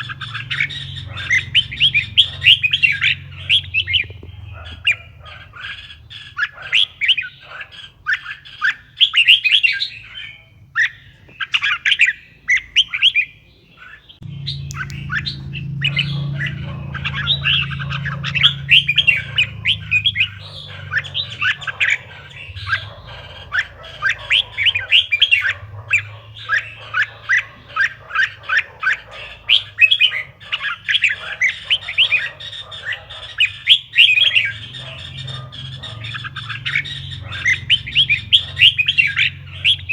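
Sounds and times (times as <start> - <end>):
bird chirping song: 0.0 - 39.9
steady low hum: 14.2 - 27.8.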